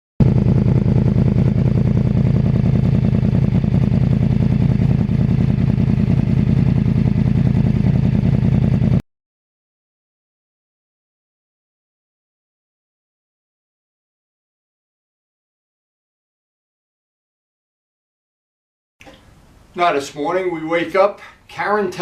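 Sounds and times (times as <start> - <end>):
motorcycle engine running: 0.2 - 9.0.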